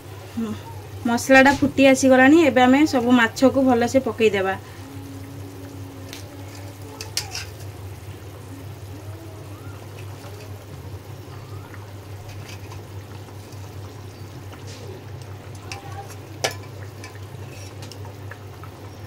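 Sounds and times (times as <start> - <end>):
gravy bubbling at a boil: 0.0 - 19.0
steady low hum: 0.0 - 19.0
clicks and splashes: 11.4 - 18.8.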